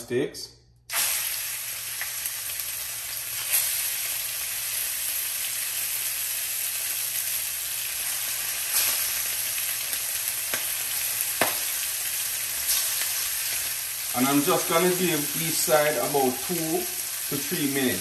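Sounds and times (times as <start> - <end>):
fish steaks sizzling in butter: 0.9 - 18.0.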